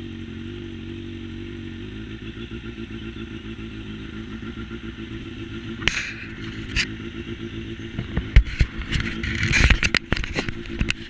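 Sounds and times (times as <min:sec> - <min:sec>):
motorcycle engine running: 0:00.0 - 0:11.0
sharp knocks and clatter: 0:08.0 - 0:11.0.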